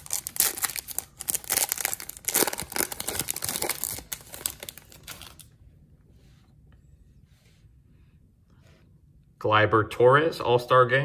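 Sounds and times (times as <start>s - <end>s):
foil wrapper tearing and crinkling: 0.0s - 5.5s.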